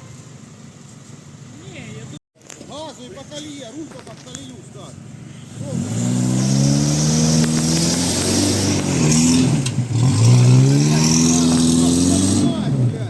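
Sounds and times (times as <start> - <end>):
off-road engine revving hard: 5.4 - 13.0.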